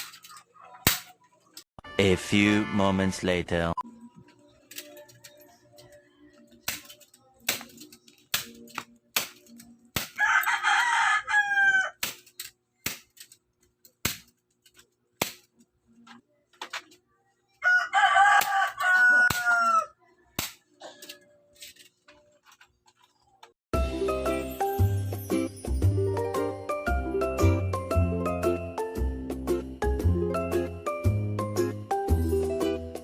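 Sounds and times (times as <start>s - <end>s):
rooster crowing: 10.2s - 12.0s, 17.6s - 20.0s.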